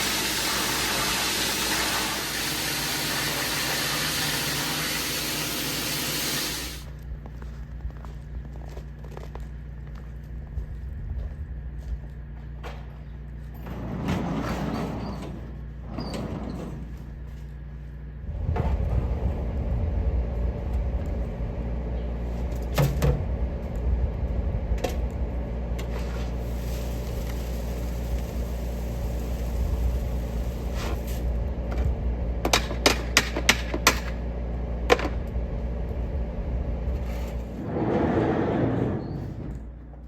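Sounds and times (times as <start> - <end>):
machine humming: 17.7 - 40.0.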